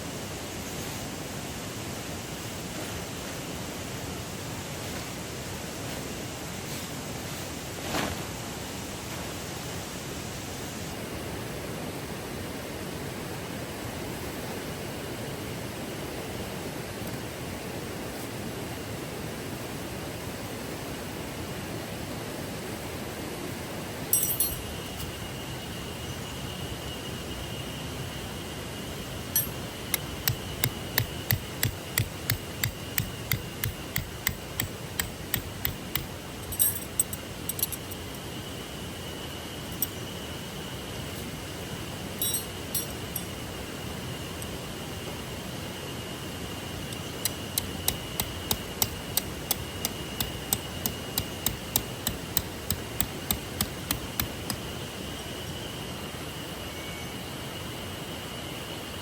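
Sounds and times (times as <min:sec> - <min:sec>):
sharp hammer-like knocks: 0:29.4 - 0:36.1, 0:47.2 - 0:54.6.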